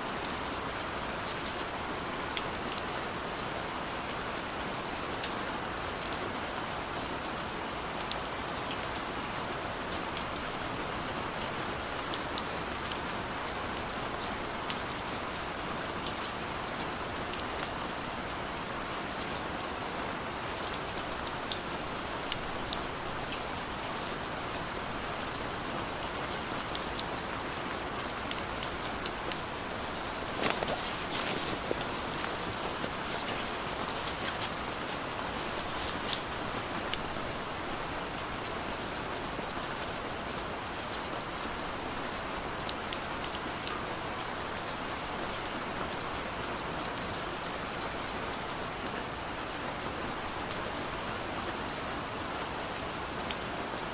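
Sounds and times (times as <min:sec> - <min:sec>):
heavy rain hissing: 0:29.1 - 0:37.5.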